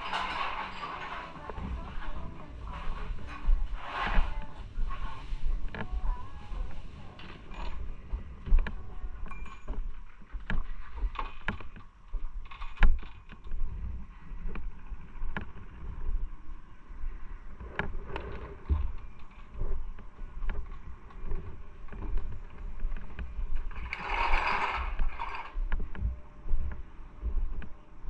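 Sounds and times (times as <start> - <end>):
sharp clicks and knocks: 7.2 - 13.8.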